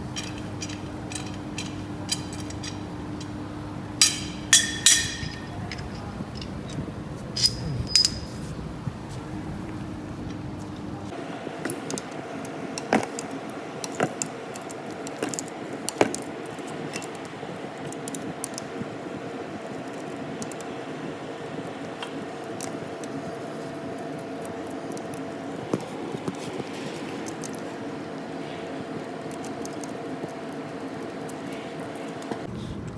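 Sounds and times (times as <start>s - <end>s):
metal tools clinking and knocking: 0.0s - 8.6s.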